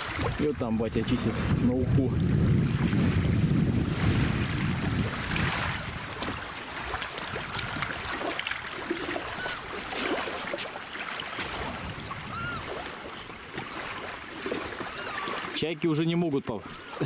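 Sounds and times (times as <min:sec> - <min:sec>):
river waves washing: 0:00.0 - 0:17.0
wind: 0:00.0 - 0:17.0
gulls calling: 0:09.0 - 0:10.6, 0:11.4 - 0:15.9.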